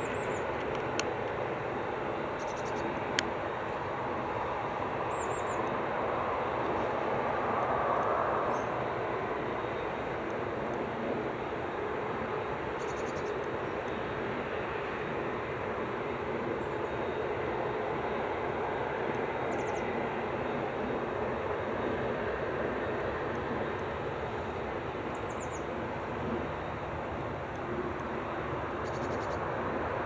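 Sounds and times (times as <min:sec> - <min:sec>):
jet engines running: 0:00.0 - 0:30.0.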